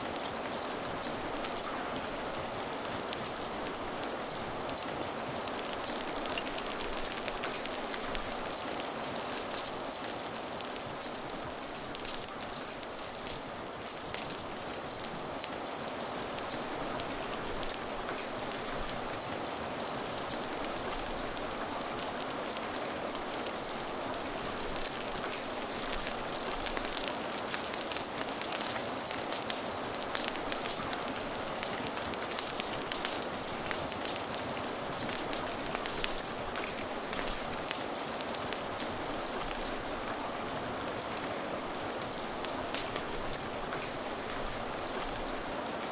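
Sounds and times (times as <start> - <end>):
crackling fire: 0.0 - 45.9
steady rain falling: 0.0 - 45.9.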